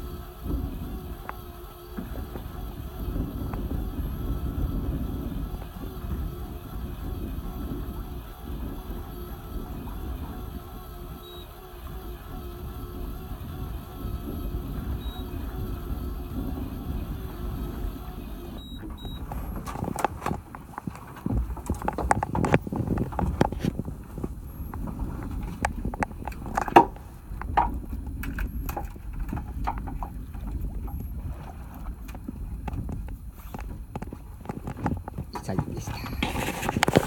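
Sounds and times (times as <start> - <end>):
low engine hum: 0.0 - 37.0
knocks and clatter: 18.8 - 31.1.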